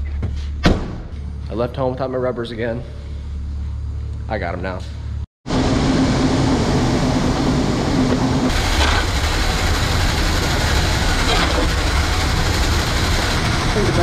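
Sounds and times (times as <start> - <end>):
steady hum: 0.8 - 14.0
heavy machinery rumbling: 5.5 - 14.0.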